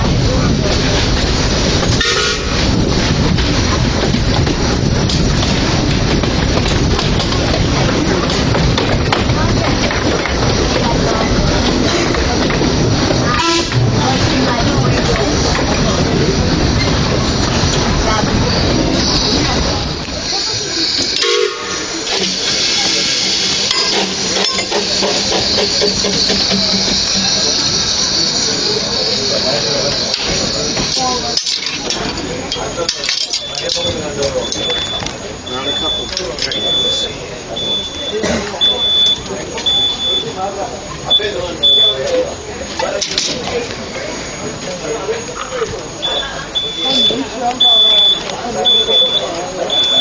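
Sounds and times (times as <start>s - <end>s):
steam train rumbling and clattering: 0.0s - 50.0s
train whistle toot: 2.0s - 2.6s, 13.3s - 13.8s, 21.2s - 22.0s
metallic clicks and clanks: 30.1s - 36.9s.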